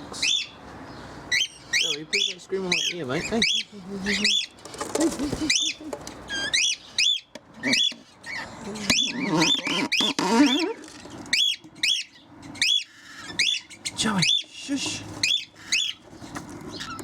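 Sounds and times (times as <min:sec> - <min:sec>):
pet bird screeching: 0:01.3 - 0:04.6, 0:05.5 - 0:14.5, 0:15.2 - 0:16.0.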